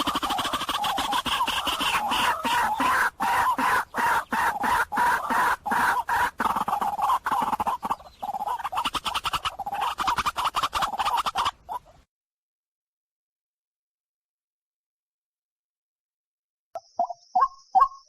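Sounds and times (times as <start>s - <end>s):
waterhen croaking calls: 0.0s - 12.0s.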